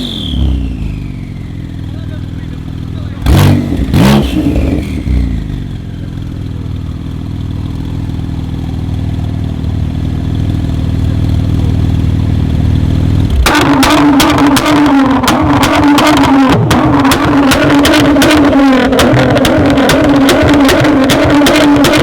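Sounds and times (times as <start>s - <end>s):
car engine droning: 0.0s - 22.0s
loud engine note: 0.0s - 22.0s
exhaust cracks and pops: 13.2s - 22.0s.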